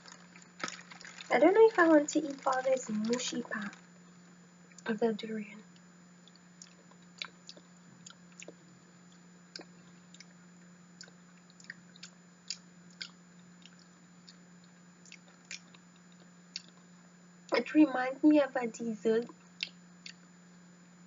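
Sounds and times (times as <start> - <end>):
faint steady hum: 0.0 - 21.0
wet chewing mouth sounds: 6.3 - 8.6, 11.0 - 16.9.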